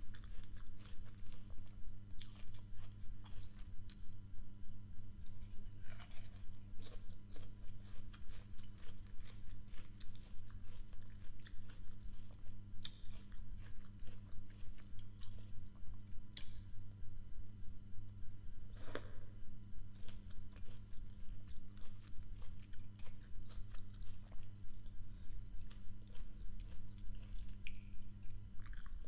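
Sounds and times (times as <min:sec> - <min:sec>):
crunchy apple chewing: 0:00.0 - 0:04.2, 0:05.2 - 0:16.7, 0:18.8 - 0:29.0.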